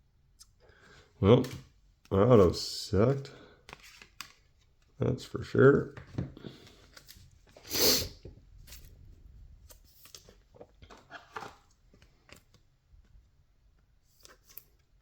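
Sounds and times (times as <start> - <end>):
cards sliding: 3.7 - 4.4, 14.1 - 14.8.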